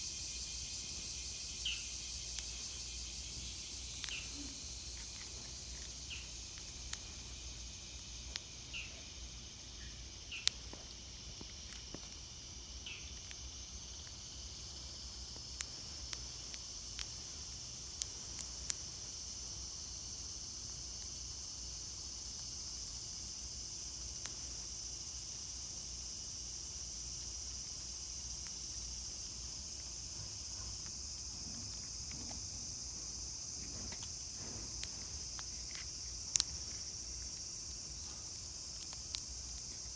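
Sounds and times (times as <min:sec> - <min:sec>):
insects shrilling: 0:00.0 - 0:39.9
sharp clicks: 0:33.6 - 0:38.1.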